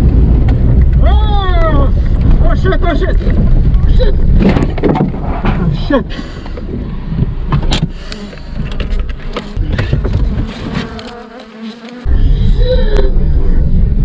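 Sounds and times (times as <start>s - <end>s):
low rumble: 0.0s - 10.7s, 12.1s - 14.0s
honeybees buzzing: 7.9s - 12.2s.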